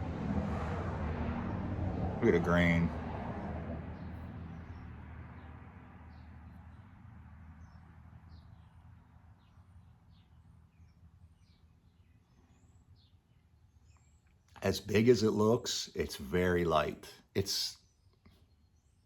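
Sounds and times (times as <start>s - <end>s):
songbird chirps: 4.0s - 19.0s.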